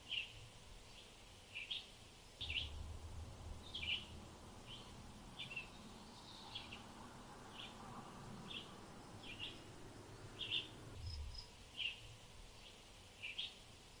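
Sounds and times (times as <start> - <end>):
bird chirping: 0.0 - 13.6
faint background hiss: 0.0 - 14.0.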